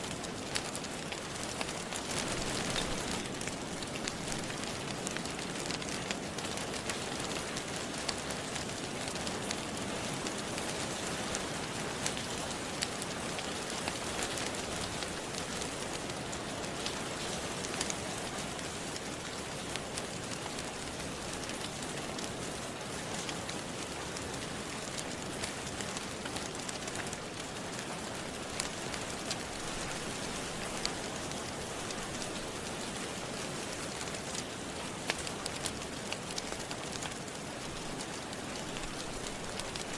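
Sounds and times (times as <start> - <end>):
steady rain: 0.0 - 39.9
wood fire crackling: 0.0 - 39.9.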